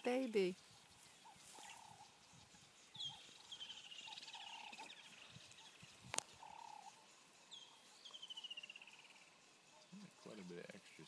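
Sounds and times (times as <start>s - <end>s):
lower wavering bird call: 6.4s - 9.1s.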